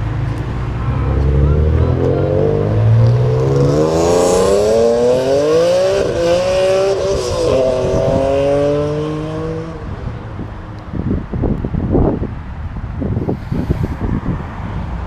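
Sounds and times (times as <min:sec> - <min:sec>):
car engine accelerating: 0:00.0 - 0:10.5.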